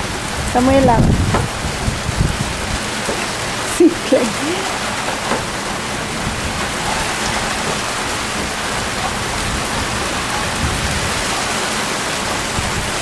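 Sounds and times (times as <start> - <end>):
rain pattering outdoors: 0.0 - 13.0.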